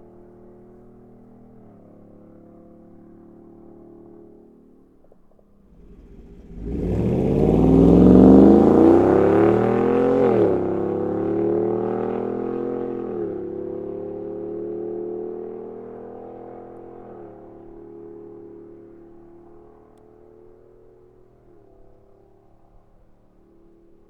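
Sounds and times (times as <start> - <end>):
car engine accelerating hard: 5.7 - 18.7.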